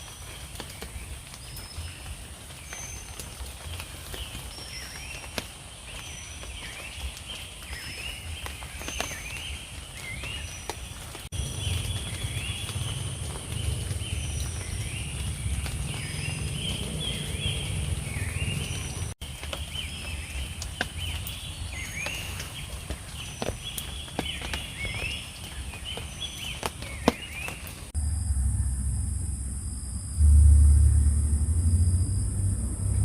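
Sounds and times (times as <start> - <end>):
low rumble: 11.3 - 19.2, 27.9 - 33.0
insects or frogs chirping: 28.0 - 33.0.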